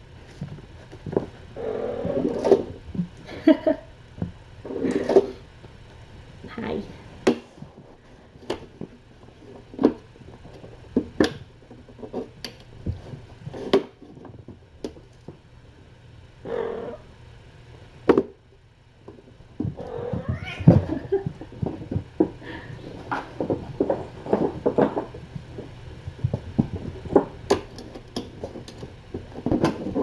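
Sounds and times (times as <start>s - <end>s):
cat meowing: 16.5s - 17.1s, 19.8s - 21.2s.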